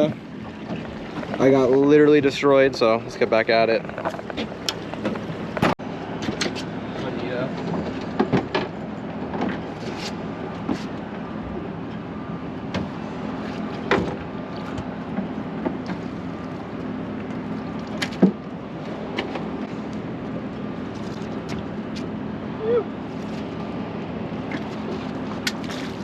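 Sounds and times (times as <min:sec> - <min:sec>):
boat motor humming: 0:00.0 - 0:26.0.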